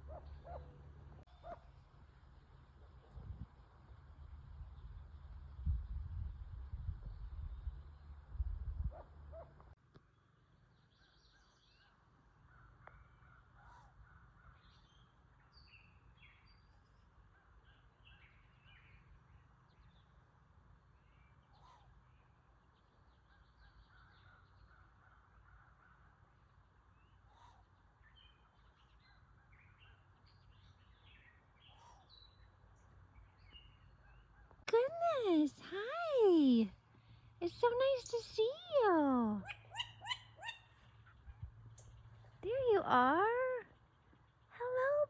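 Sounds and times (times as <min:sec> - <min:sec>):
birds chirping: 0:27.0 - 0:45.0.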